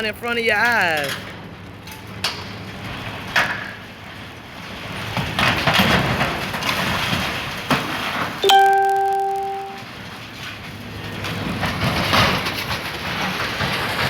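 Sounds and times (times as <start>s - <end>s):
demolition machine tearing structure: 1.0s - 8.4s, 10.0s - 14.0s
debris crashing and crunching: 2.1s - 8.4s, 9.9s - 14.0s.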